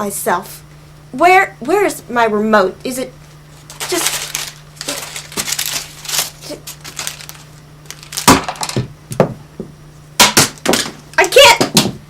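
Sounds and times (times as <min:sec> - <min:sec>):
rustling and crinkling: 0:03.2 - 0:08.7.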